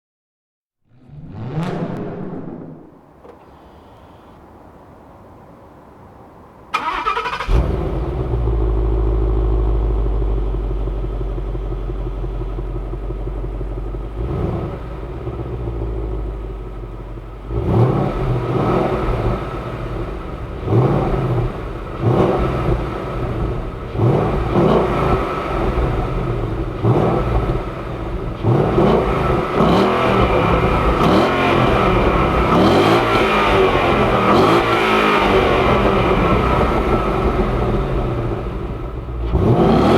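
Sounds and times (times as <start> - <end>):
car engine revving: 0.9 - 3.4, 6.8 - 39.9
car engine starting: 0.9 - 4.2, 6.7 - 39.9
car engine idling: 6.8 - 39.9.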